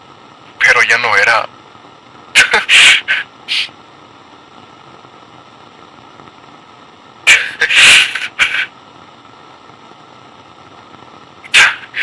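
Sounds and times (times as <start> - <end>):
walkie-talkie static: 0.6 - 1.5, 2.4 - 3.7, 7.3 - 8.7, 11.5 - 12.0
harsh hissing bursts: 2.4 - 3.8, 7.2 - 8.8, 11.4 - 12.0.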